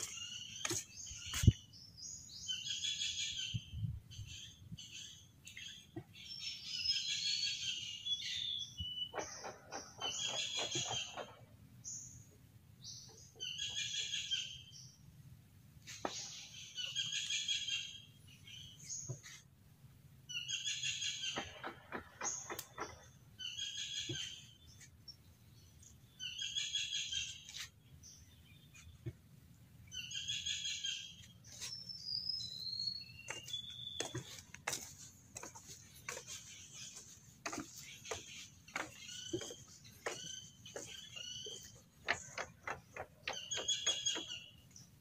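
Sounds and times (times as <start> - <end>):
footsteps on wooden planks: 0.0 - 1.6, 33.2 - 44.5.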